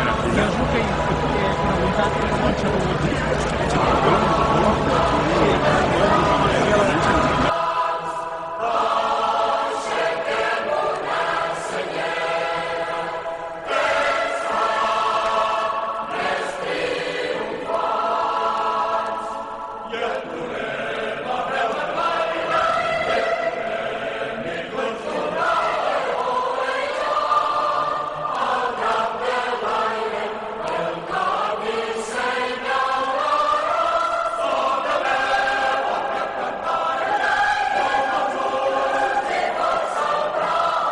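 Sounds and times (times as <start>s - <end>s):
group of voices singing: 0.0s - 40.9s.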